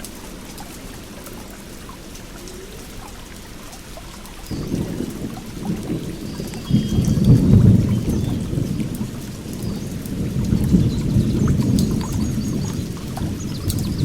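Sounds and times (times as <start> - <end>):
water rushing: 0.0 - 14.0
small birds chirping: 4.1 - 14.0.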